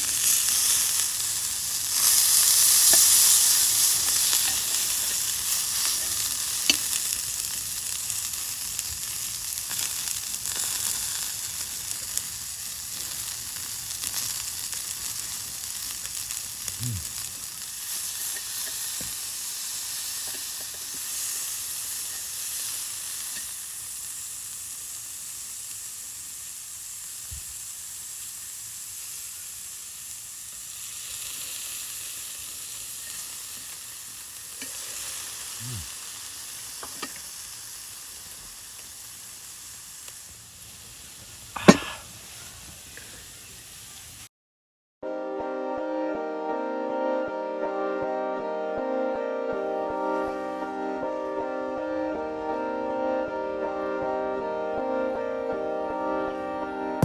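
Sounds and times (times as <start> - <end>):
food sizzling in a hot pan: 0.0 - 44.3
sharp knock: 41.6 - 42.0.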